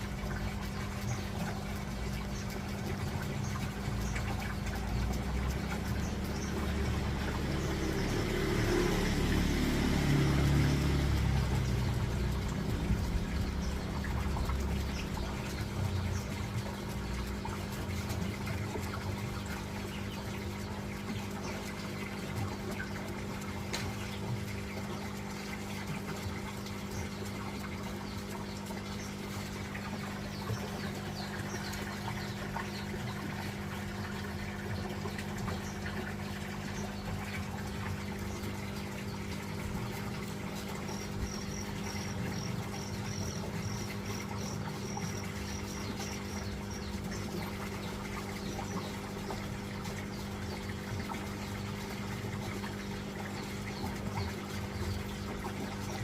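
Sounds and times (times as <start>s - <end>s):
running water: 0.0s - 56.0s
water pump humming: 0.0s - 56.0s
bird chirping: 28.0s - 49.4s.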